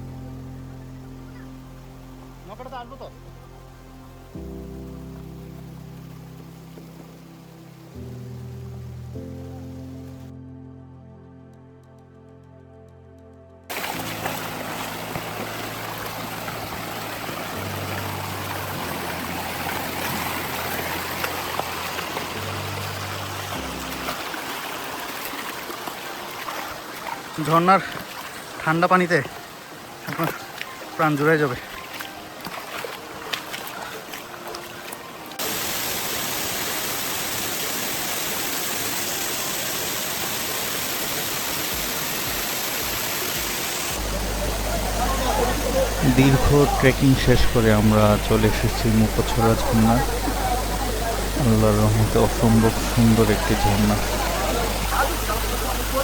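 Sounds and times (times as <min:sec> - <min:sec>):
soft low music drone: 0:00.0 - 0:27.2, 0:43.9 - 0:56.0
water pouring over rocks: 0:13.7 - 0:56.0.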